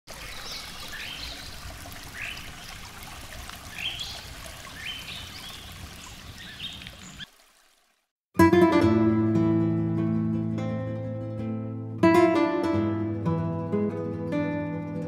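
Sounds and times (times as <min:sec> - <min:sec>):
birds singing: 0:00.1 - 0:02.9, 0:03.6 - 0:07.3.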